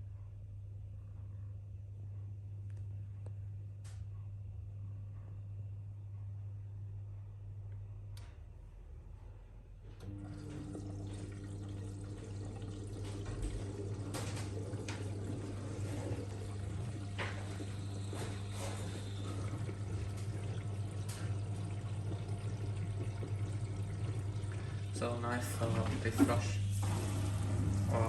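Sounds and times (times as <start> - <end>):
washing machine hum: 4.6 - 28.0
water rushing and pouring: 10.1 - 28.0.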